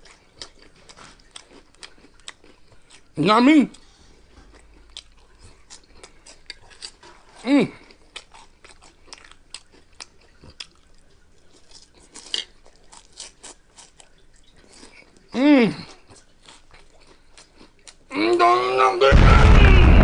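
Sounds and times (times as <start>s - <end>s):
chewing and crunching snacks: 0.0s - 18.9s.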